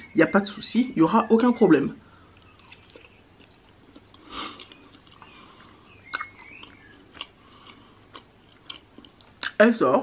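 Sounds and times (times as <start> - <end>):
chewing mouth sounds: 2.3 - 9.6
wet mouth clicks: 2.3 - 9.6.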